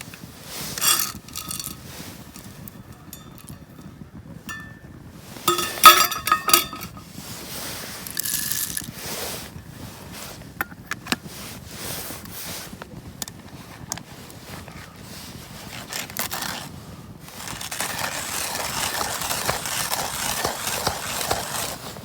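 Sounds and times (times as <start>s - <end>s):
rustling: 0.0s - 10.6s, 11.2s - 22.0s
cookware clinking: 0.8s - 4.9s, 5.5s - 7.0s.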